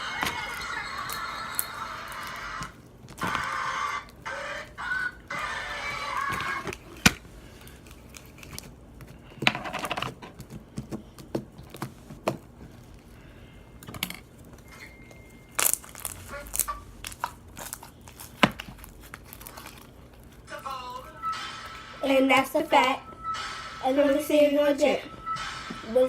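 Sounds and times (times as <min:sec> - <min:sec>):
sticky slime crackling and popping: 0:15.5 - 0:20.5.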